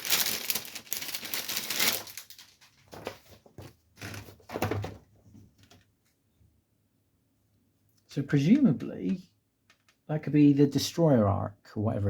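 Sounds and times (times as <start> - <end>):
magazine pages rustling: 0.0 - 4.7.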